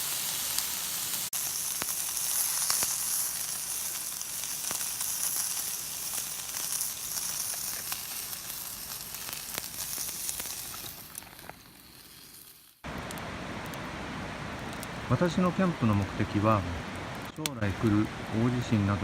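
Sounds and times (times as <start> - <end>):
food sizzling in a pan: 0.0 - 12.9.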